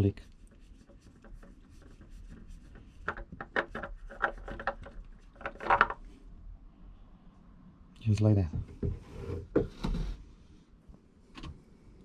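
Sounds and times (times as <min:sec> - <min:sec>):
oil filter scraping and rubbing: 0:00.0 - 0:06.1.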